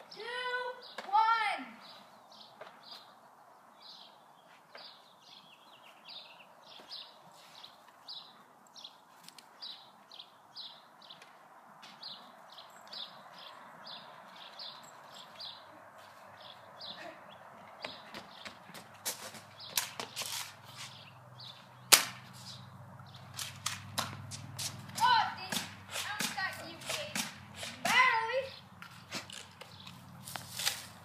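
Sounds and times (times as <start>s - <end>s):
outdoor background hiss: 0.0s - 17.8s, 18.4s - 31.0s.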